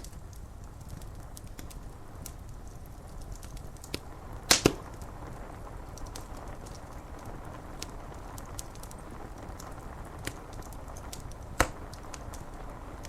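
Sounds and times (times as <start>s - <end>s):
rain on window glass: 0.0s - 13.0s
sharp fire pops: 0.0s - 13.0s
wood fire crackling: 0.0s - 13.0s.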